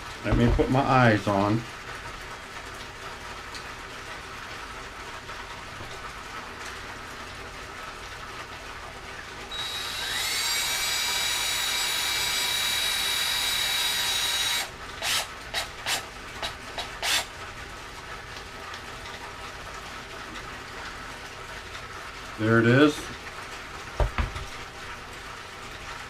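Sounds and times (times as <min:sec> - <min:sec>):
electric drill whining: 0:09.5 - 0:16.0, 0:17.0 - 0:17.3
drill driving screw into wood: 0:09.5 - 0:17.3.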